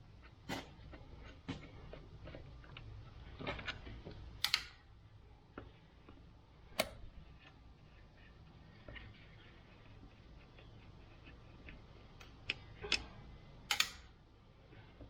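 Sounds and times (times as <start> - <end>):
small parts clicking and knocking: 8.8 - 14.2.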